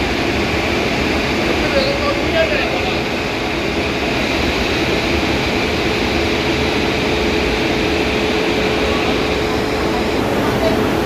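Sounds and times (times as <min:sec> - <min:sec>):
engine room machinery drone: 0:00.0 - 0:11.0.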